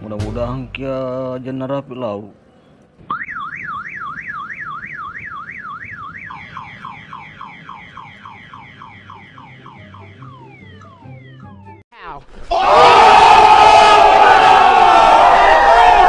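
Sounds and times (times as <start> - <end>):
electronic siren warble: 3.1 - 11.8
falling electronic chirps: 3.1 - 11.8.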